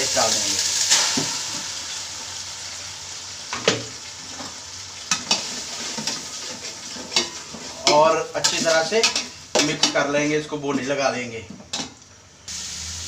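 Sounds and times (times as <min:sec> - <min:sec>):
paste sizzling in hot oil: 0:00.0 - 0:10.1, 0:12.5 - 0:13.0.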